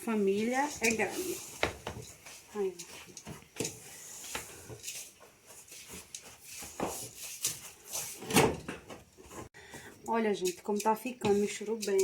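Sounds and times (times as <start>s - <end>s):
spoon scraping a pan: 10.4s - 12.0s.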